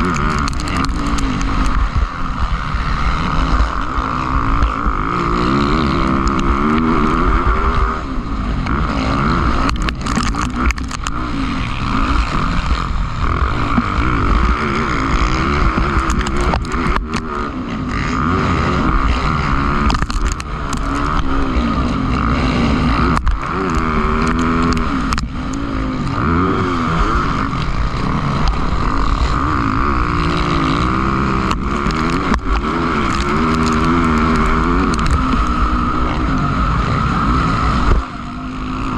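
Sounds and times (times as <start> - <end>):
motocross bikes revving: 0.0 - 38.9.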